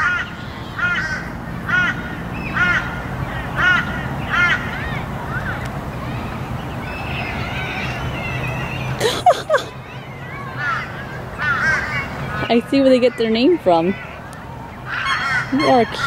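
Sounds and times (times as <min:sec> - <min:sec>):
bird rising and falling calls: 0:00.0 - 0:12.5.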